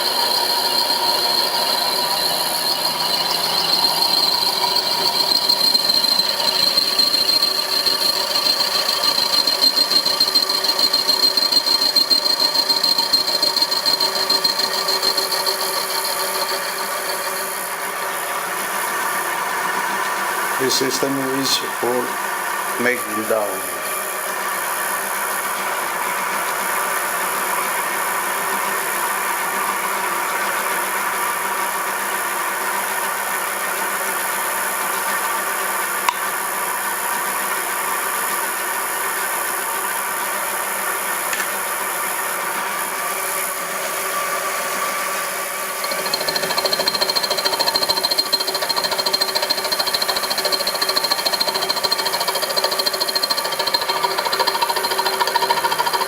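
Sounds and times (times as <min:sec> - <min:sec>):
high machine whine: 0:00.0 - 0:18.5, 0:20.6 - 0:24.7
rough rattling machine: 0:45.9 - 0:56.0.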